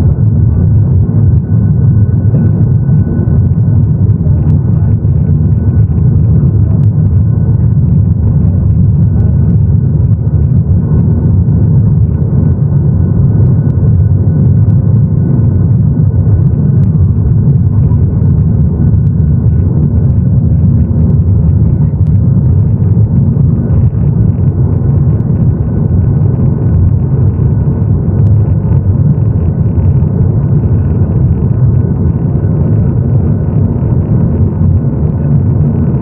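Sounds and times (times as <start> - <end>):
airliner cabin engine rumble: 0.0 - 36.0
faint steady whine: 0.0 - 36.0.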